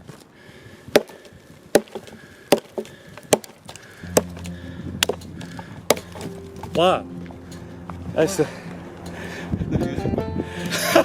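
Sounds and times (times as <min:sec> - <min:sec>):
axe chopping log: 0:00.9 - 0:06.3.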